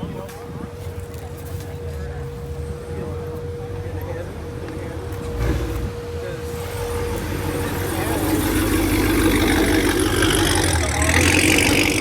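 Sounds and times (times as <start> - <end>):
car engine idling: 2.5 - 12.0.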